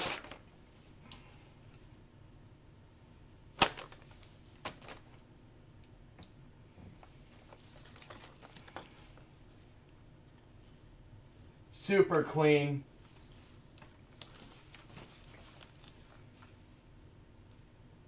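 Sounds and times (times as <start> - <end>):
fabric handling noise: 0.0 - 2.0, 2.9 - 5.4, 12.9 - 17.8.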